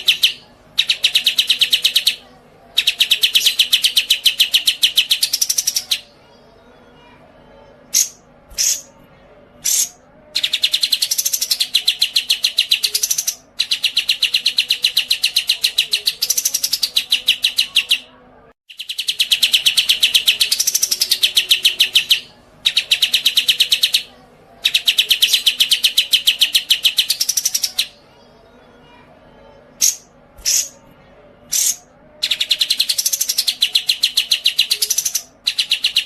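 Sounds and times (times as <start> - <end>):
songbird singing trills: 0.0 - 6.2, 9.6 - 18.1, 18.7 - 28.0, 31.5 - 36.0.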